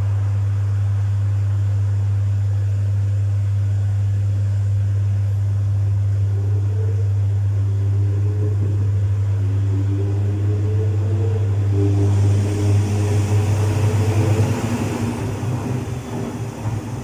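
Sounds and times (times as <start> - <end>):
washing machine low hum: 0.0 - 17.0
wavering motor whine: 5.3 - 17.0.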